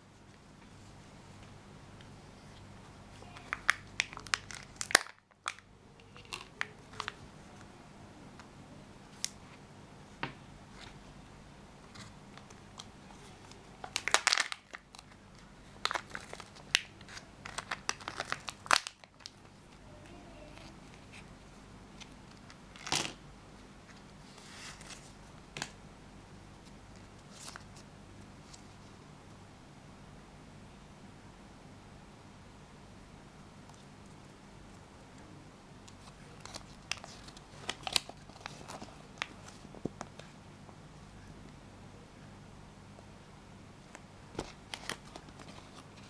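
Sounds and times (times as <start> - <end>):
plastic wrapping crinkling and tearing: 3.2 - 7.3, 11.9 - 19.6, 22.0 - 23.2, 27.1 - 27.9, 35.9 - 40.3, 44.3 - 46.0.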